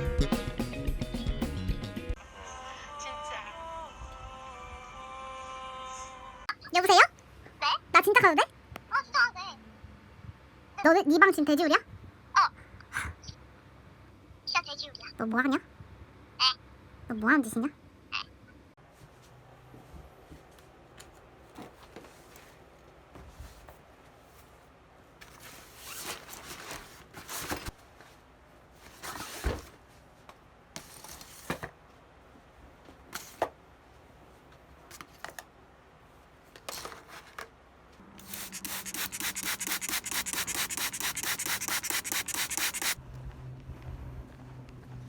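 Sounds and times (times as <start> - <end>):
rustling and handling noises: 18.8 - 43.0
fast back-and-forth rubbing: 38.2 - 43.0.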